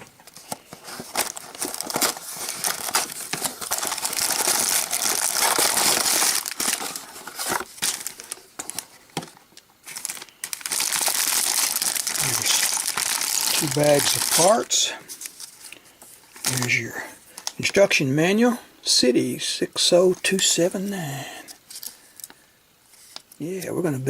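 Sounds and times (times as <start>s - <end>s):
plastic bags crinkling: 0.0s - 17.8s
box being opened: 0.1s - 10.3s.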